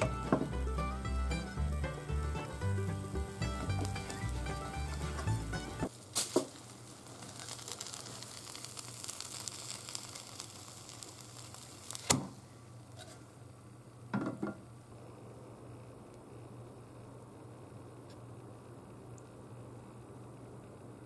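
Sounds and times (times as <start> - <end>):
knocks on pan: 0.0 - 0.6, 14.1 - 14.6
food sizzling in pan: 0.0 - 13.3.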